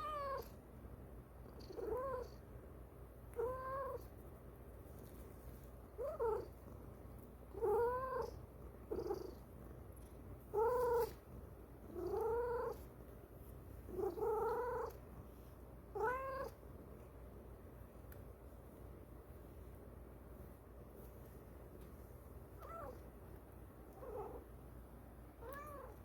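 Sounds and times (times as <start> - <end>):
cat meowing: 25.4 - 26.0.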